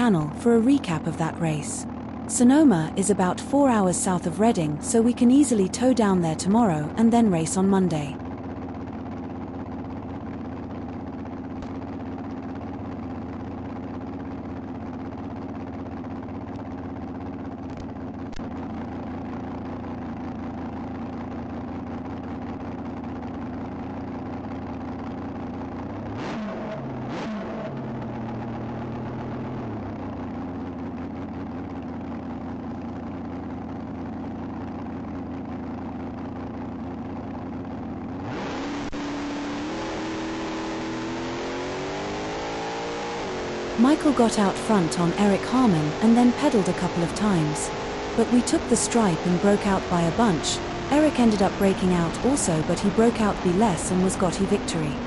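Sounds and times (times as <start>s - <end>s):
dragster engine idling: 1.8s - 2.3s, 8.2s - 26.2s, 27.7s - 38.3s.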